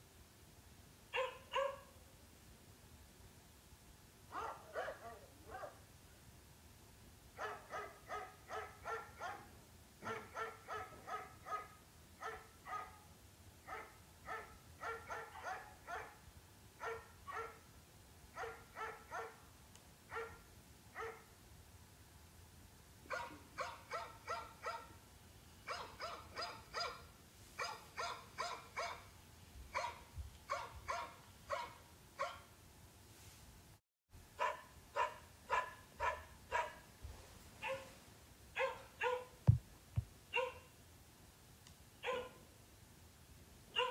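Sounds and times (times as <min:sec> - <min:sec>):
dog barking: 0:01.2 - 0:02.0, 0:04.3 - 0:05.8, 0:07.4 - 0:16.2, 0:16.8 - 0:17.6, 0:18.4 - 0:19.4, 0:20.1 - 0:20.4, 0:21.0 - 0:21.3, 0:23.1 - 0:25.0, 0:25.7 - 0:29.1, 0:29.7 - 0:32.5, 0:34.4 - 0:36.9, 0:37.6 - 0:38.0, 0:38.6 - 0:39.4, 0:40.3 - 0:40.7, 0:42.0 - 0:42.4.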